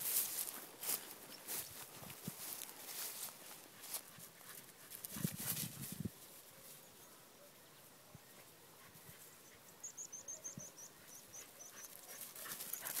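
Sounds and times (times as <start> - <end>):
dog feet rustling grass: 0.0 - 6.8
small bird chirping: 9.4 - 12.1.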